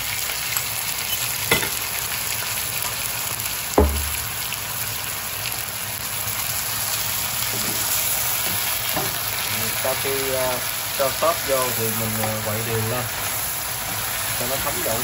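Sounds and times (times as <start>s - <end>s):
food sizzling in a wok: 0.0s - 15.0s
sharp knocks: 3.8s - 4.2s.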